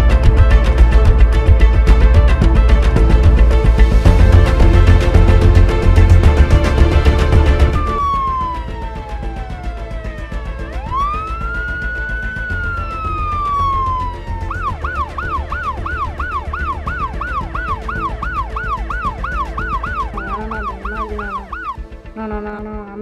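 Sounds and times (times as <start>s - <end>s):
ambulance siren: 4.1s - 21.9s.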